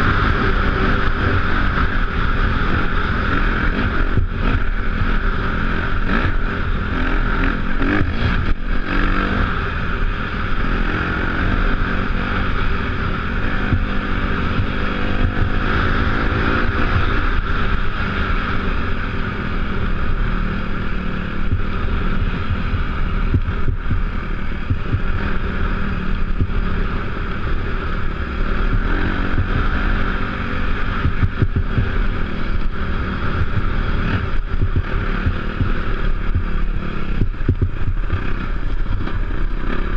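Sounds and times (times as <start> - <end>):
motorbike engine revving: 0.0 - 39.9
wind noise on microphone: 12.2 - 39.9.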